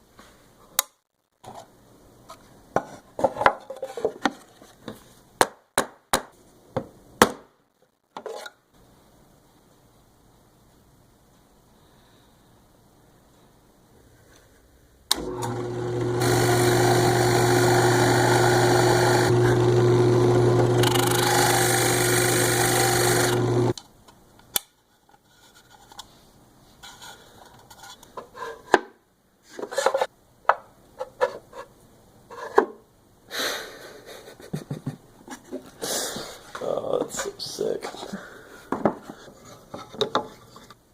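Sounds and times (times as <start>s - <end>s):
woodworking power tool whirring: 15.1s - 23.8s.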